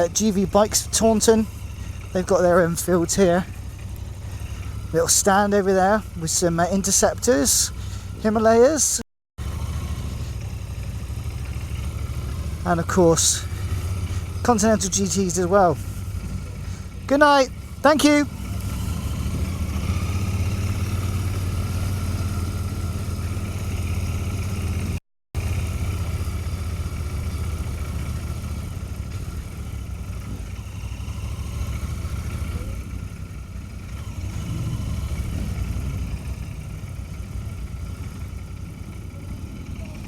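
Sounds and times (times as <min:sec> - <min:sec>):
motorcycle engine running at low revs: 0:00.0 - 0:40.0.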